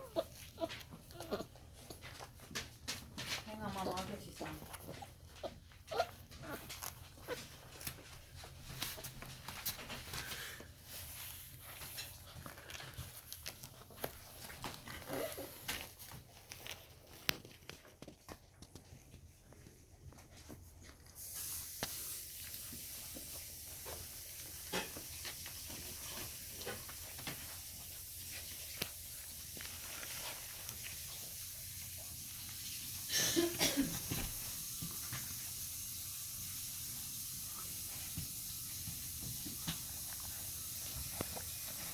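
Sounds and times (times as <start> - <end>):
puppies whimpering: 0.0 - 2.0
small clicks and scratches: 0.0 - 10.3, 10.9 - 21.2
steady hiss: 21.2 - 41.9.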